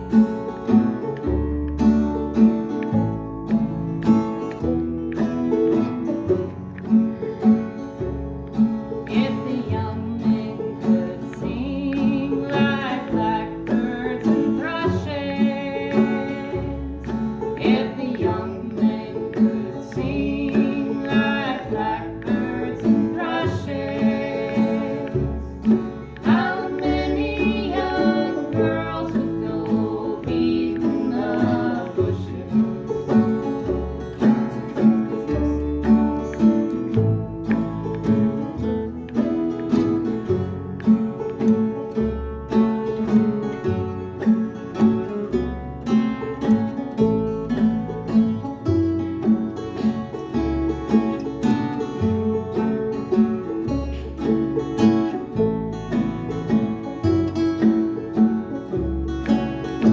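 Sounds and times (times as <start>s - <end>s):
acoustic guitar plucked: 0.0s - 59.9s
bass line: 0.0s - 59.9s
person singing: 9.1s - 33.5s.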